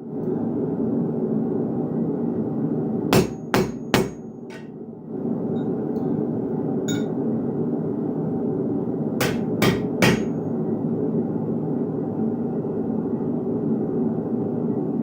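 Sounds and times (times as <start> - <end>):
hammer striking iron on anvil: 3.2 - 4.7, 6.9 - 7.1, 9.2 - 10.4.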